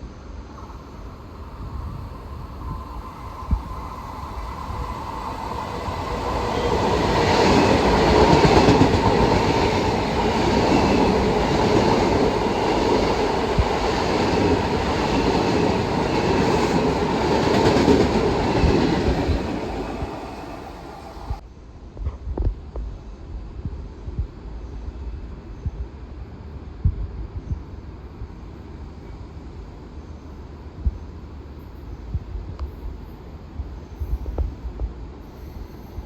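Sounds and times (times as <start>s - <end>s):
train wheels clattering: 3.4s - 21.4s.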